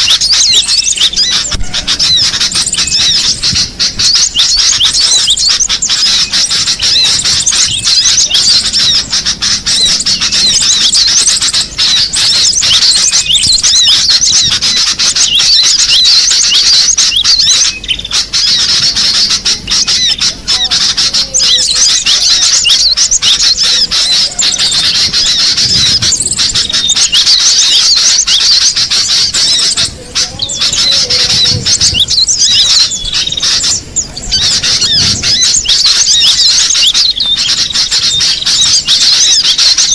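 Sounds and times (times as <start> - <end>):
birds chirping and whistling: 0.0 - 39.9.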